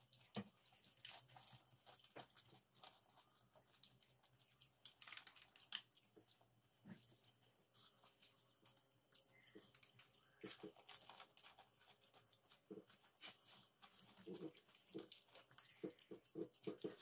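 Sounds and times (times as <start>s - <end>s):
crunching and chewing: 0.0s - 17.0s
crisp shells cracking: 4.3s - 6.1s.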